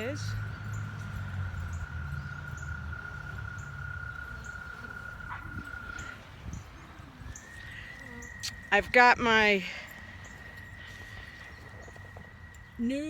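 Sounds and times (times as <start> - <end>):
bee swarm humming: 0.0 - 13.0.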